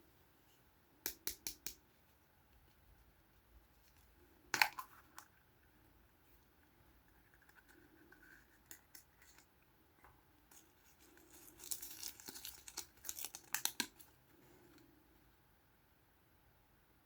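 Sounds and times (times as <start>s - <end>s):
packaging clicks and rustles: 11.0s - 14.2s
wrapper crinkling and tearing: 11.2s - 14.1s.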